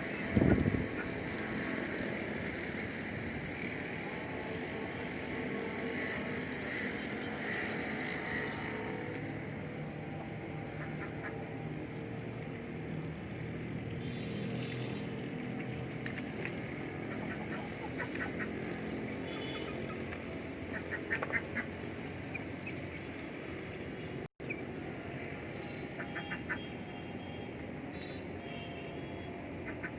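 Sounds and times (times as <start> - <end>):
ducks quacking and calling: 10.7 - 11.4, 17.0 - 18.7, 20.7 - 22.8, 25.9 - 26.7, 29.6 - 29.9.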